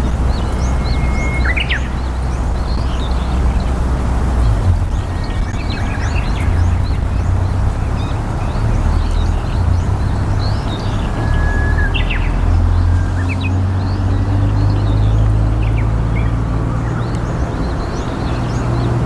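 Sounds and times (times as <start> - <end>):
steady low rumble: 0.0 - 11.2
small birds chirping: 0.0 - 19.0.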